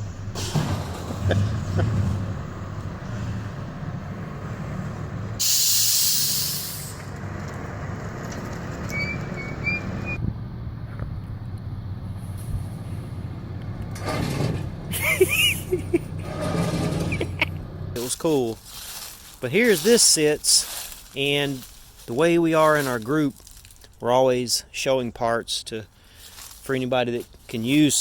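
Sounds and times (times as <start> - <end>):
engine running: 0.0 - 23.6
loud hiss burst: 5.4 - 7.0.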